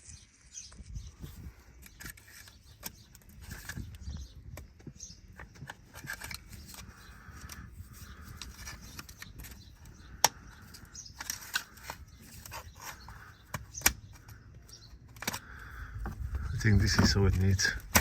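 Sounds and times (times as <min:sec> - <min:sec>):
rubber pipe rubbing: 0:01.2 - 0:14.4.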